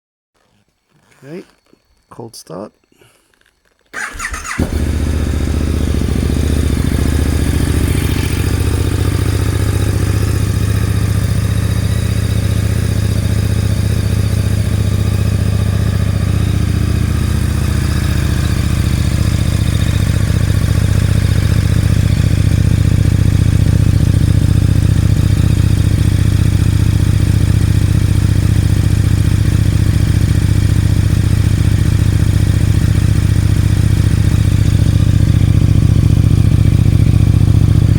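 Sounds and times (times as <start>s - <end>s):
motorcycle engine idling: 3.9s - 37.9s.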